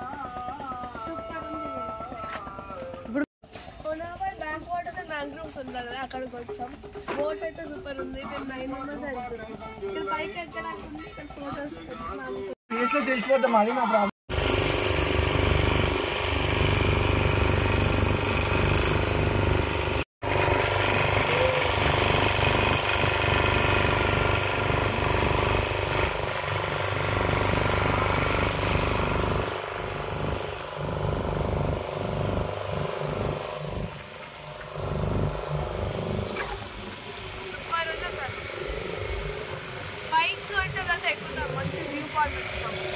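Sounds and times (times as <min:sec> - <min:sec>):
boat engine droning: 0:14.4 - 0:42.9.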